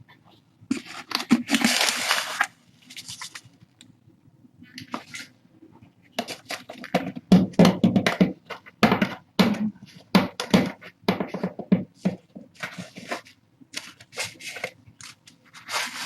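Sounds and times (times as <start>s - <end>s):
scraping and crunching strokes: 12.6s - 16.0s.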